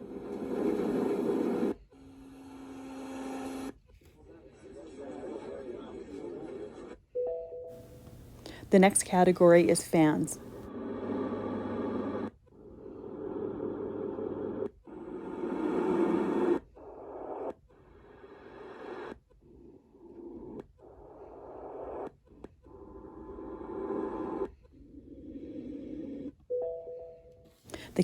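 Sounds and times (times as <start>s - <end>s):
recorded fan noise from speaker: 7.8s - 10.6s, 27.7s - 28.0s.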